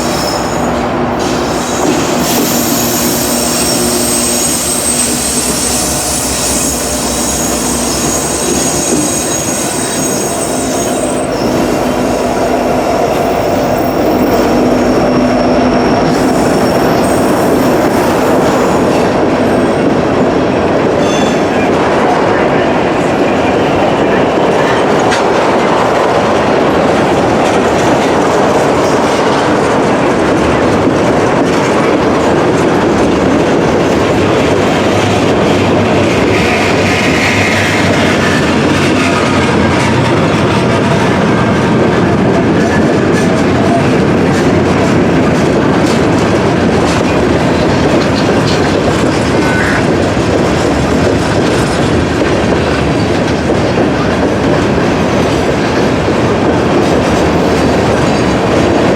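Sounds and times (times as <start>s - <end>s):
freight train cars rolling past: 0.0s - 58.9s
train wheels clicking over rail joints: 23.4s - 58.9s.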